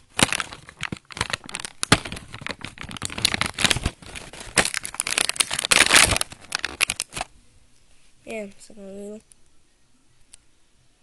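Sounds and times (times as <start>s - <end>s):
plastic toy parts rustling and clicking: 0.0s - 7.3s.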